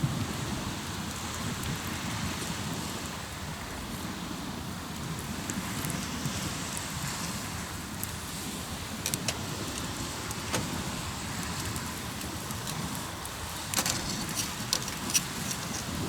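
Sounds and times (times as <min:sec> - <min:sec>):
waves breaking on shore: 0:00.0 - 0:16.0
campfire crackling and popping: 0:04.7 - 0:16.0.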